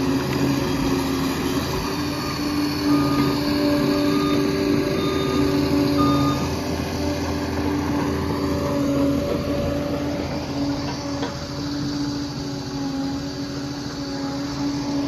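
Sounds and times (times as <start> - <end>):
bulldozer diesel engine running: 0.0 - 15.0
whining tones: 0.0 - 15.0.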